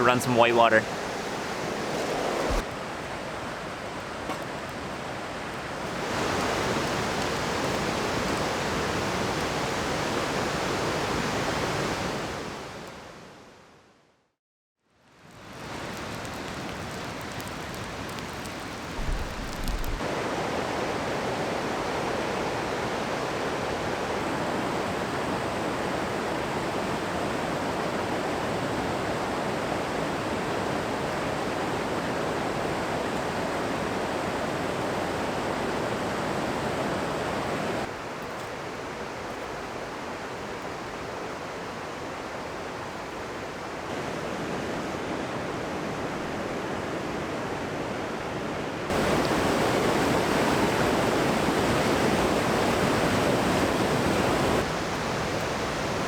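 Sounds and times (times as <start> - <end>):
rushing whitewater: 0.0 - 12.7, 15.5 - 56.0
low bumps: 19.0 - 20.0.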